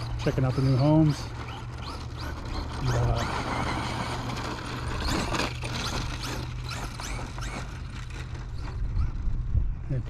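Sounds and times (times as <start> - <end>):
electric motor whining in bursts: 0.0 - 9.6.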